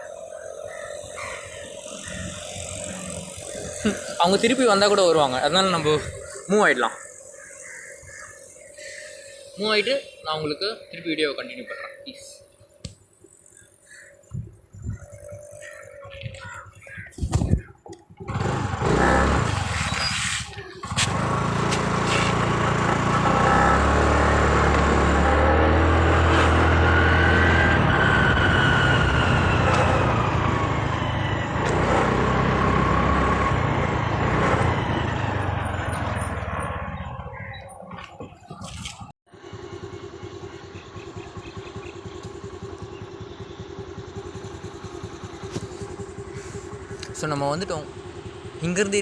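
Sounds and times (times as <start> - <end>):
wind noise on microphone: 14.3 - 18.8
motorbike engine running: 18.2 - 49.0.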